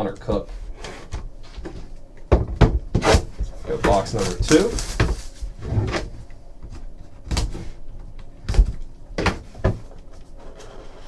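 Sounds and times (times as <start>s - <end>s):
cardboard box being opened: 3.0s - 6.2s.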